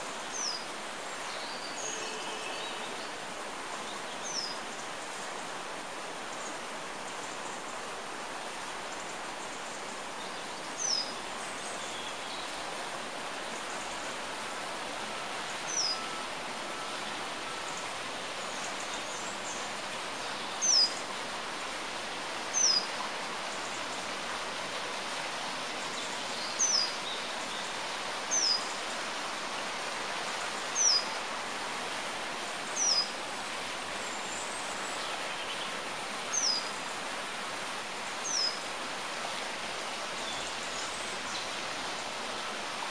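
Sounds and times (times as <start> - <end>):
steady background hiss: 0.0 - 42.9
songbird high downward call: 15.7 - 17.8.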